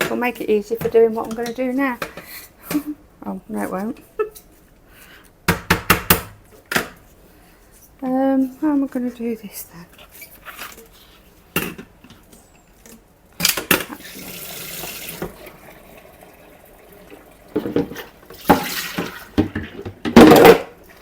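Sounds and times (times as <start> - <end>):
water running from a tap: 13.9 - 19.4
hard items clattering in a sink: 17.5 - 21.0.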